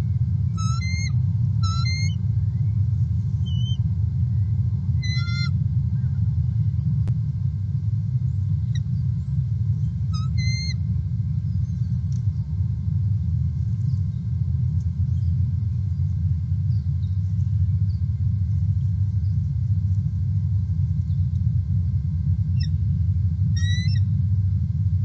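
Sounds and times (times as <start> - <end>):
steady low rumble: 0.0 - 25.0
bird calling ringing notes: 0.4 - 2.8, 3.4 - 6.2, 9.8 - 12.0, 22.5 - 24.2.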